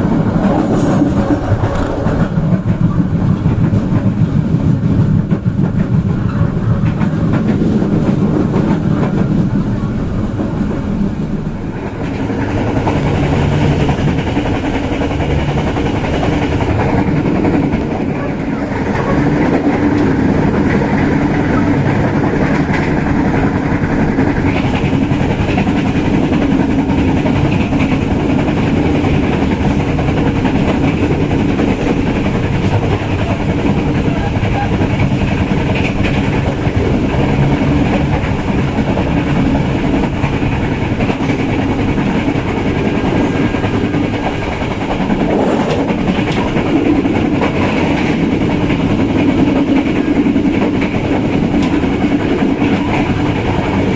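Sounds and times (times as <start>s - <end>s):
faint clickety-clack: 0.0s - 9.6s, 11.8s - 53.9s
train wheels rumbling on rails: 0.0s - 53.9s.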